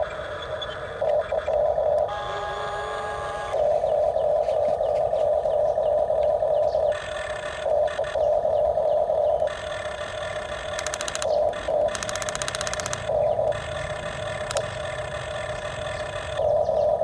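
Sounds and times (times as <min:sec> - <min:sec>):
small electric motor whining: 0:00.0 - 0:16.8
rapid ratcheting clicks: 0:09.0 - 0:16.4.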